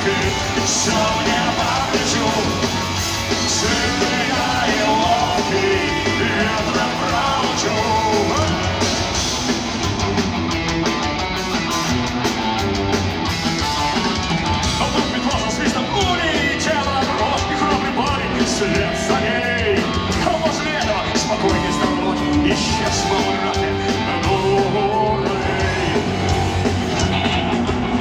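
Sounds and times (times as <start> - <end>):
person singing: 0.0 - 9.0, 14.8 - 26.4
punk rock band playing loud: 0.0 - 28.0.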